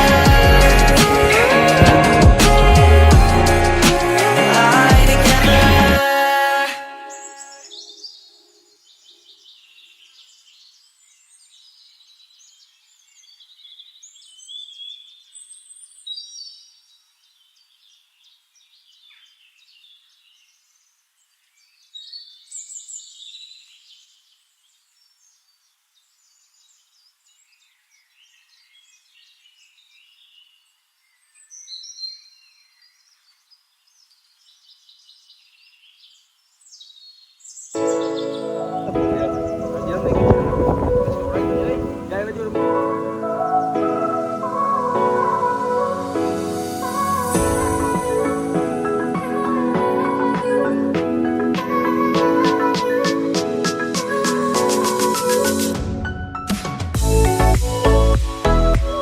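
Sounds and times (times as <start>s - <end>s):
birds singing and chirping: 7.1s - 44.8s.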